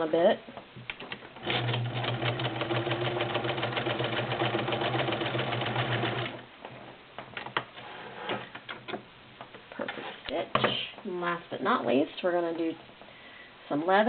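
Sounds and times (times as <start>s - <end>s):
sewing machine running: 1.4s - 6.4s.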